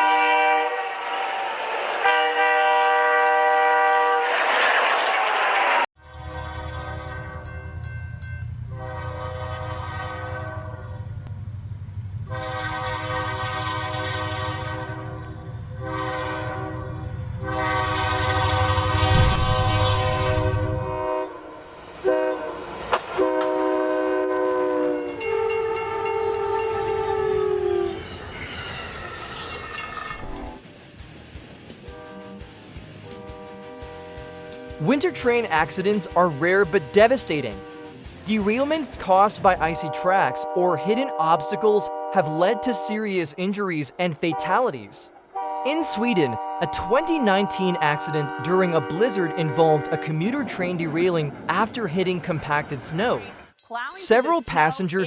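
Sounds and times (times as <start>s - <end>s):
locomotive horn blasts: 0.0s - 1.0s, 2.0s - 4.3s, 6.0s - 7.7s, 8.7s - 11.1s, 12.2s - 28.1s, 31.8s - 38.0s, 39.4s - 43.1s, 44.3s - 50.6s
moving train rumble: 0.0s - 55.0s.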